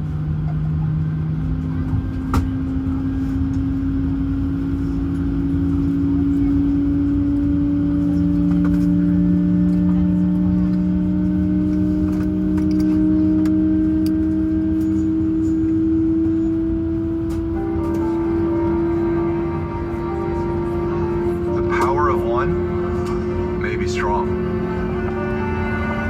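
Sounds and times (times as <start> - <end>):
jet engine whine spooling up: 0.0 - 26.0
low cabin rumble: 0.0 - 26.0.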